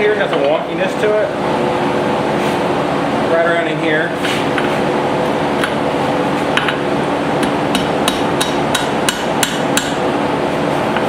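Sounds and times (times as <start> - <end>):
steady hum: 0.0 - 11.0
hammer striking steel on anvil: 7.4 - 10.0.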